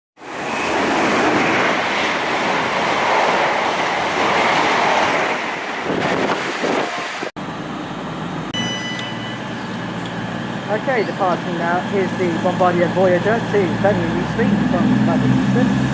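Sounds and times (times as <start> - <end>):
rumble of standing train: 0.2 - 15.9
train passing at speed: 0.2 - 15.9
short high steady tone: 8.5 - 11.4.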